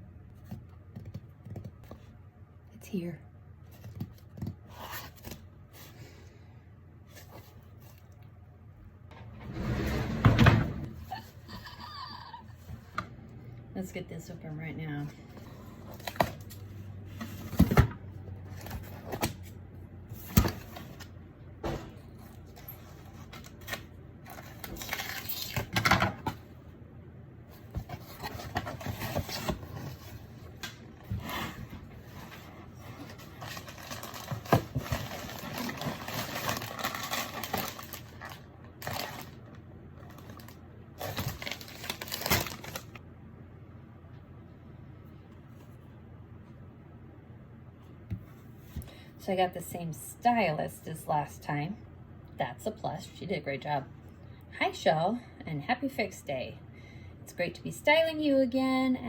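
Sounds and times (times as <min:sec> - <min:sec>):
paper rustling and crinkling: 0:27.7 - 0:43.0.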